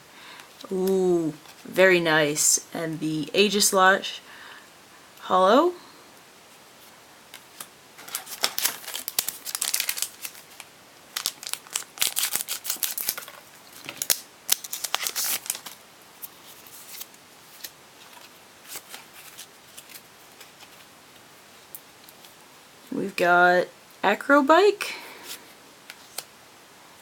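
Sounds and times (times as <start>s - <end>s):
foil wrapper tearing and crinkling: 7.6s - 15.8s.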